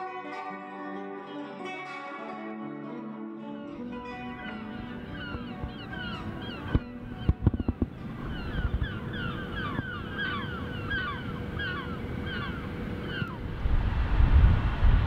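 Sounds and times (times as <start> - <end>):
many birds chattering: 4.1 - 13.4.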